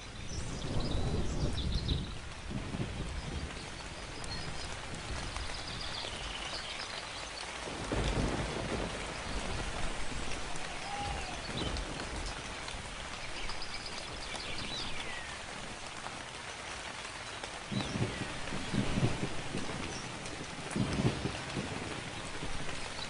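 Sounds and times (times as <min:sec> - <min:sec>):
low thunder rumbling: 0:00.0 - 0:06.4, 0:07.6 - 0:16.2, 0:17.6 - 0:23.0
steady rain: 0:00.0 - 0:23.0
birds chirping: 0:09.1 - 0:15.6.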